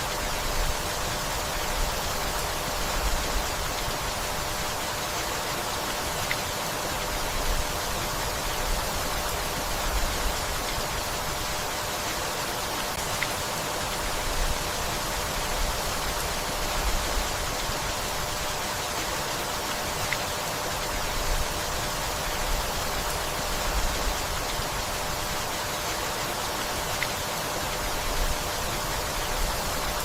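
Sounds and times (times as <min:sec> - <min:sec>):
steady rainfall: 0:00.0 - 0:30.0.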